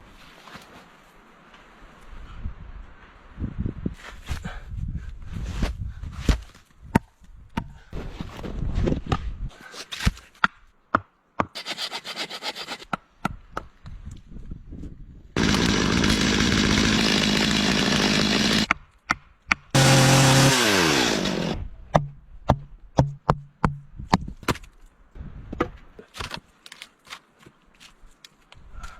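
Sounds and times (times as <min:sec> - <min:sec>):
chainsaw cutting wood: 0:15.4 - 0:18.7, 0:19.7 - 0:21.7.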